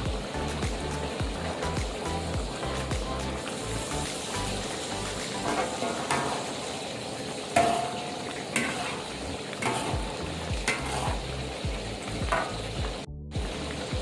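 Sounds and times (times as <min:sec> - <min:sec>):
food sizzling in a pan: 0:00.0 - 0:14.0
spatula scraping a pan: 0:05.4 - 0:06.6, 0:07.6 - 0:11.6.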